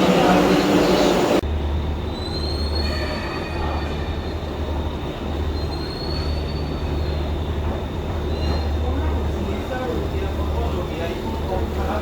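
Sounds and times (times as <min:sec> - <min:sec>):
train rumbling on rails: 0:00.0 - 0:12.0
wheel squeals: 0:05.3 - 0:09.2.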